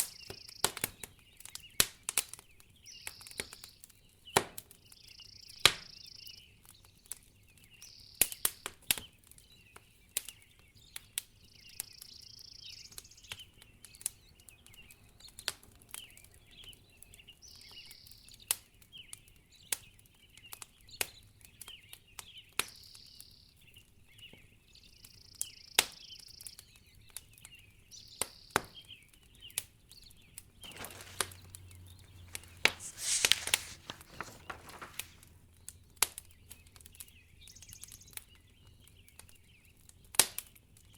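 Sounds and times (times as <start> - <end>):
wood fire crackling: 30.6 - 36.1.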